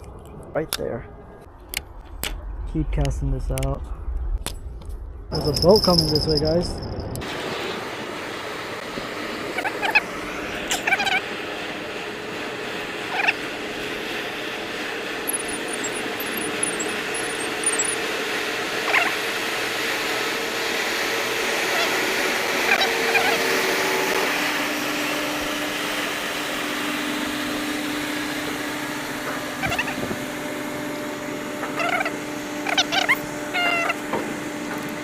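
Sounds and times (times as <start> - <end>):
boat engine droning: 7.3 - 35.0.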